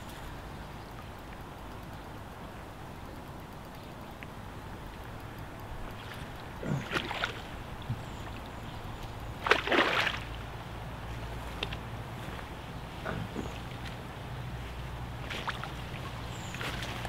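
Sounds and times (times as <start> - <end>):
water splashing: 5.8 - 8.6, 9.2 - 10.6, 15.2 - 17.0.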